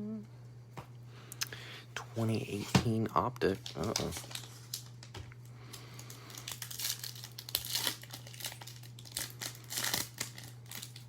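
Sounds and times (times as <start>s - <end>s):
steady low hum: 0.0s - 11.0s
foil wrapper crinkling and tearing: 3.5s - 11.0s.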